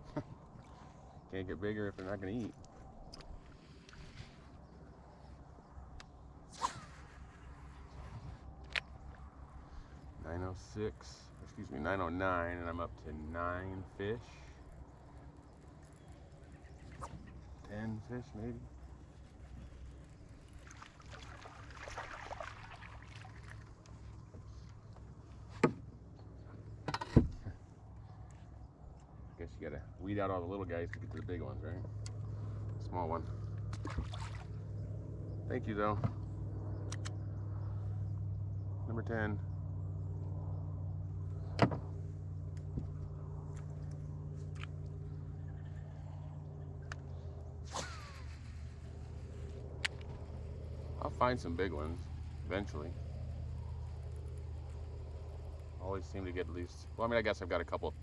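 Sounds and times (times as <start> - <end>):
low motor hum: 0.0 - 58.0
water splashing and dripping: 20.5 - 24.0, 33.7 - 34.5
sharp click: 36.9 - 37.2.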